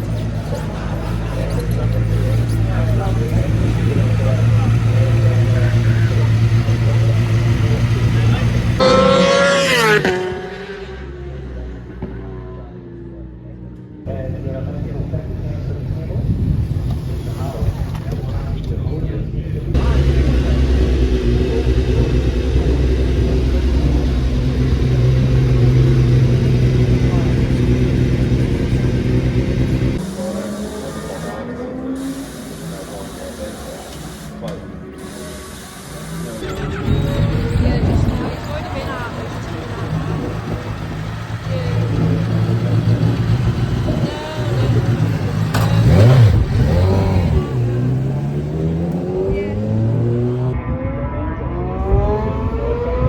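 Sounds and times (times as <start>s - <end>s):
vehicle engine rumbling: 0.0s - 53.0s.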